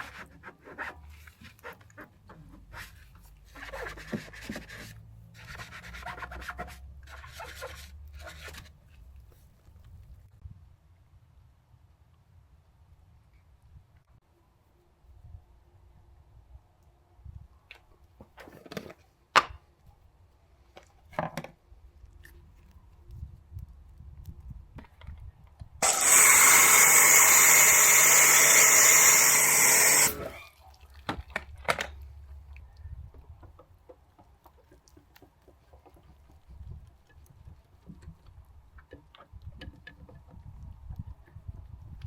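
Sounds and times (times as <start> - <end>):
loud hissing spray: 25.8 - 30.4.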